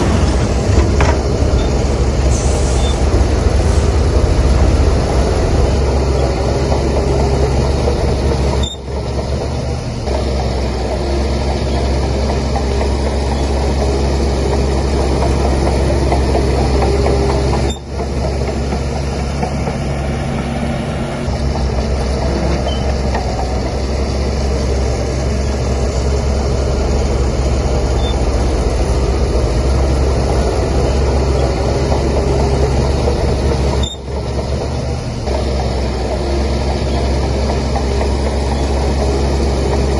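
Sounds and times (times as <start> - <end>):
bulldozer diesel engine rumble: 0.0 - 39.9.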